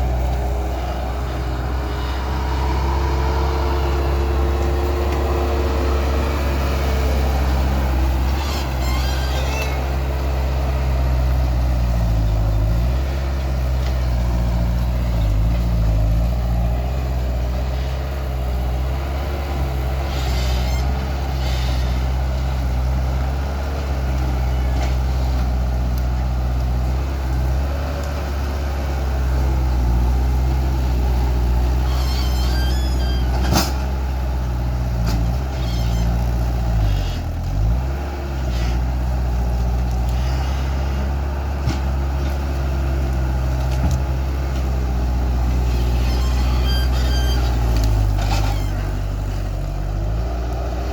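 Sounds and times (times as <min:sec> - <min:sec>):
diesel engine running: 0:00.0 - 0:50.9
short high squeaks: 0:08.1 - 0:10.1, 0:20.0 - 0:22.0, 0:31.6 - 0:34.0, 0:35.4 - 0:37.3, 0:40.1 - 0:41.0, 0:45.6 - 0:49.2.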